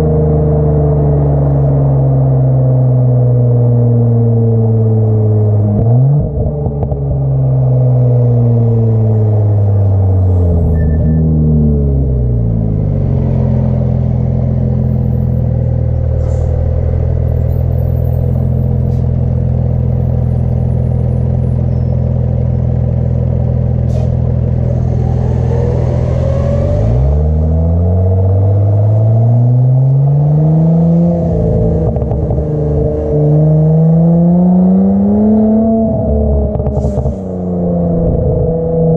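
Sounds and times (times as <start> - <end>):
car engine revving: 22.4 - 38.9.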